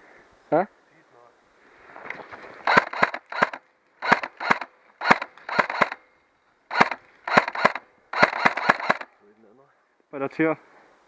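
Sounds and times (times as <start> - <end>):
airsoft gun shots: 2.6 - 6.0, 6.7 - 9.1.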